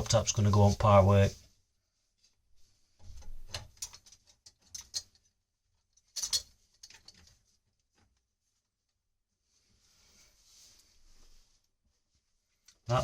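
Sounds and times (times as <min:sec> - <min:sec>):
pipe fittings clicking and knocking: 0:03.0 - 0:08.2.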